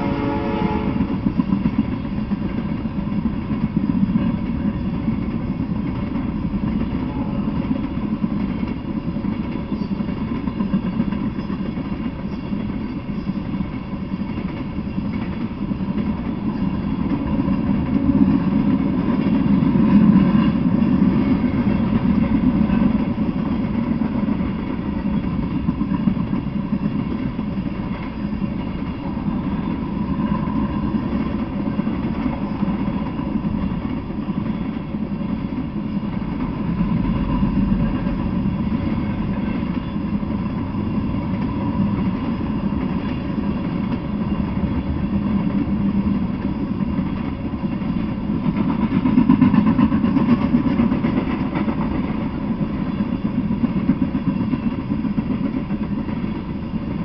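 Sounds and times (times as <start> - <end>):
train horn blast: 0.0 - 1.2, 7.0 - 7.6
freight train wheels rumbling: 0.0 - 57.0.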